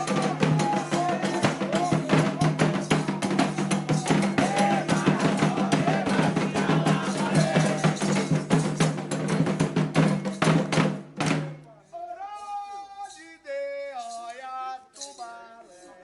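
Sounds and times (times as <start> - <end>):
voices singing: 0.0 - 9.0, 11.5 - 16.0
hand drums beating fast rhythm: 0.0 - 11.6.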